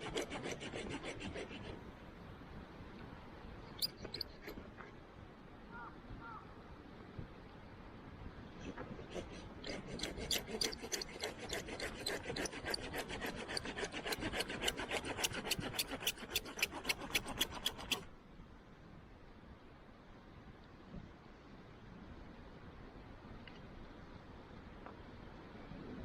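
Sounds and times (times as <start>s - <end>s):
hand saw cutting wood: 0.0s - 1.8s, 8.9s - 18.1s.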